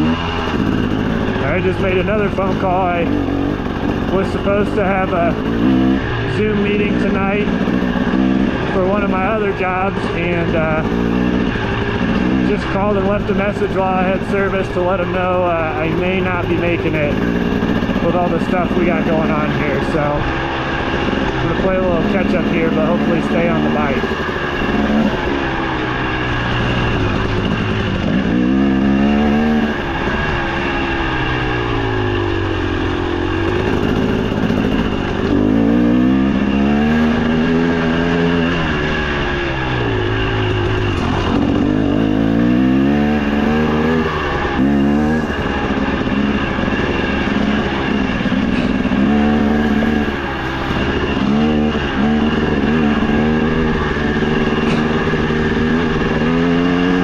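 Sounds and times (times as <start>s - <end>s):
dirt bike engine revving: 0.0s - 57.0s
steady rushing noise: 0.0s - 57.0s.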